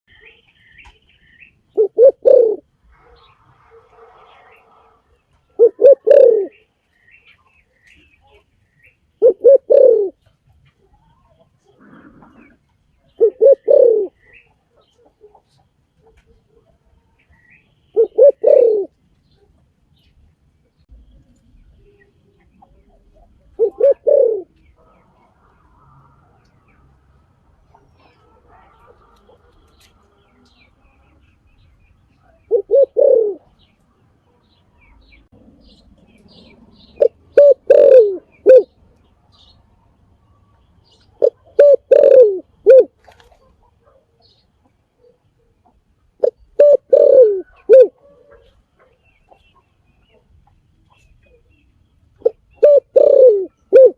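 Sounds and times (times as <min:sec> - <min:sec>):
dove cooing: 0:01.7 - 0:06.6, 0:09.2 - 0:10.2, 0:11.2 - 0:16.7, 0:17.9 - 0:19.0, 0:22.6 - 0:25.1, 0:32.2 - 0:33.7, 0:35.2 - 0:38.8, 0:41.0 - 0:44.3, 0:45.0 - 0:49.0, 0:52.2 - 0:53.9.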